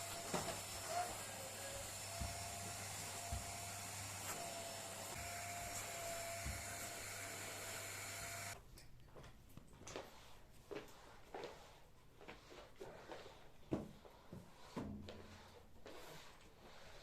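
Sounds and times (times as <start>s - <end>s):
small appliance motor humming: 0.0s - 8.6s.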